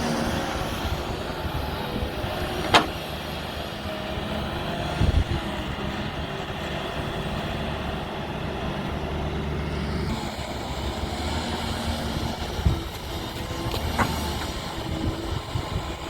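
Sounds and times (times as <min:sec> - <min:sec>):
backhoe diesel engine running: 0:00.0 - 0:16.0
dull thump: 0:02.6 - 0:03.0.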